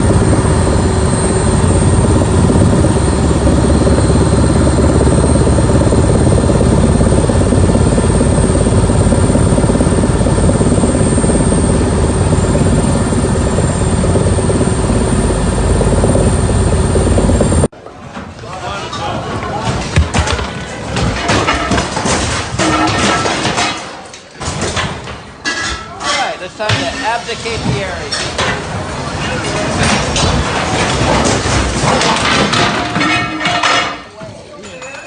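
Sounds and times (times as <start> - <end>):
helicopter rotor and engine: 0.0 - 17.7, 26.4 - 35.0.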